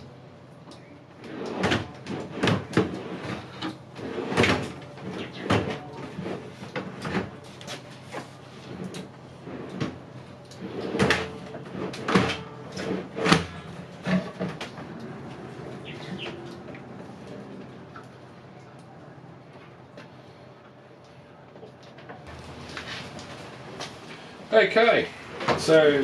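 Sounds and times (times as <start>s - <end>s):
drawers sliding on metal slides: 1.2s - 7.4s, 8.0s - 16.6s.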